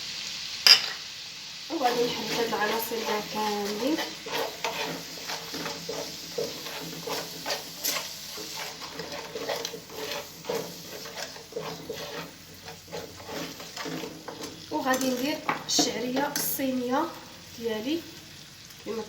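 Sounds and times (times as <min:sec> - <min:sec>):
food sizzling: 0:00.0 - 0:19.0
utensil scraping a frying pan: 0:01.7 - 0:16.7.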